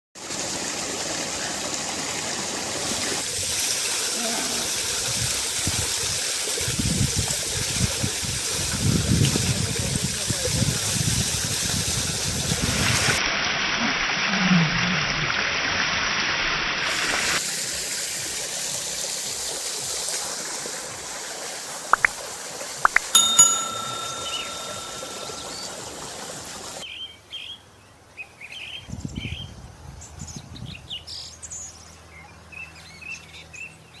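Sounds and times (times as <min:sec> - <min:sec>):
short ringing tone: 0:22.9 - 0:26.2.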